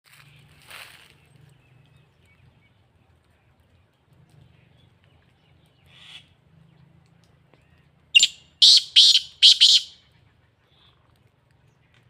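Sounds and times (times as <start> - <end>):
francolin calling: 8.2 - 10.0.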